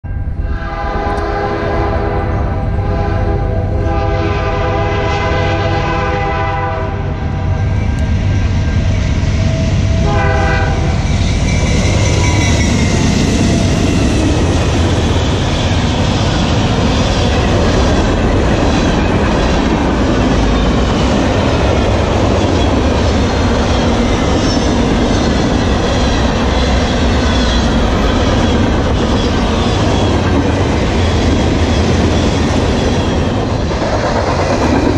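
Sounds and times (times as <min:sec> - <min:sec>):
freight train passing: 0:00.0 - 0:34.9
locomotive horn blasts: 0:00.4 - 0:07.2, 0:10.0 - 0:11.0.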